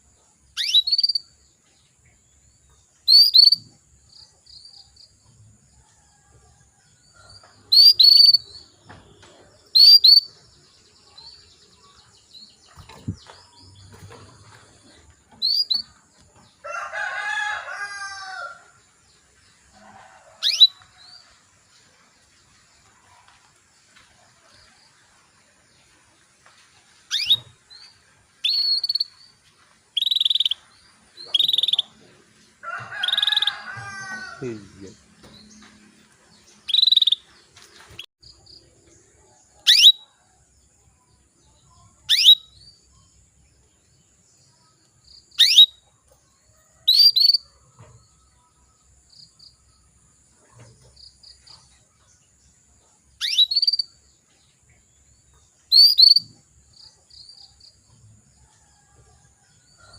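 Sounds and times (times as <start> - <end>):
canary trills and chirps: 0.5 - 1.4, 3.0 - 5.0, 7.3 - 19.0, 19.8 - 21.3, 27.1 - 29.4, 30.0 - 32.0, 32.7 - 34.3, 36.4 - 37.3, 39.6 - 40.1, 41.8 - 42.9, 44.8 - 46.0, 46.8 - 48.2, 53.0 - 54.0, 55.3 - 57.8
canary chirping: 0.6 - 1.2, 3.0 - 3.7, 7.7 - 8.8, 9.7 - 10.6, 15.4 - 16.0, 20.4 - 20.8, 27.1 - 29.2, 30.0 - 30.6, 31.2 - 32.0, 36.6 - 37.2, 39.6 - 40.0, 42.0 - 42.6, 45.4 - 45.8, 46.9 - 47.4, 53.2 - 54.0, 55.7 - 56.3
rooster crowing: 16.6 - 18.8, 19.7 - 20.9, 32.6 - 34.9.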